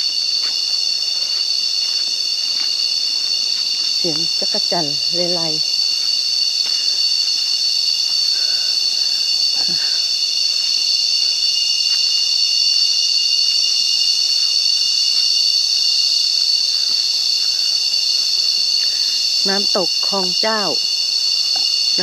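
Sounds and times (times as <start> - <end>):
cicadas droning: 0.0 - 22.0.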